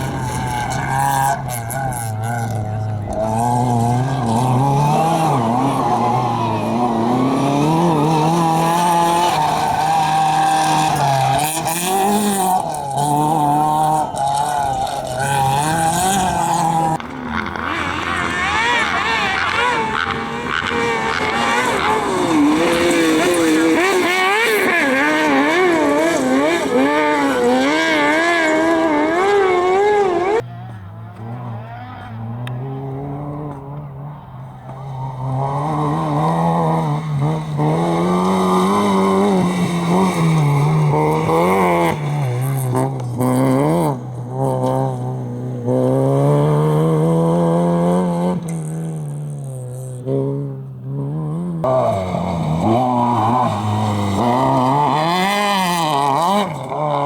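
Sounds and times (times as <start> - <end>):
low engine revving: 0.0 - 57.0.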